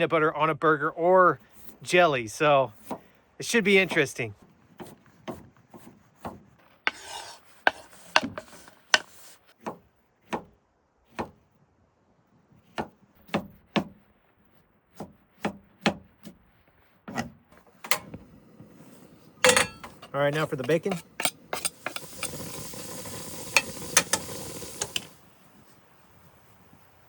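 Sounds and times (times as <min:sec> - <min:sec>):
rubbing scrape: 0:04.5 - 0:09.6, 0:16.5 - 0:25.2
knife chopping on wooden board: 0:04.8 - 0:10.5, 0:11.1 - 0:11.4, 0:12.7 - 0:14.0, 0:14.9 - 0:16.4.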